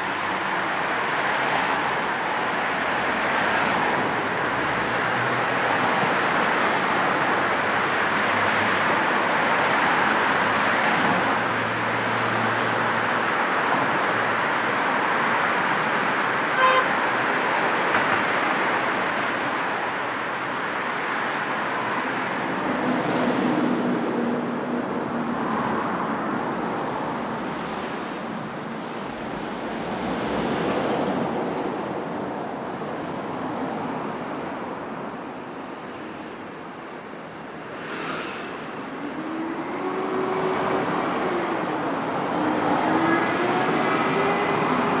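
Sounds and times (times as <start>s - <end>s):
car horn toot: 16.6s - 16.9s
cars passing: 21.0s - 45.0s.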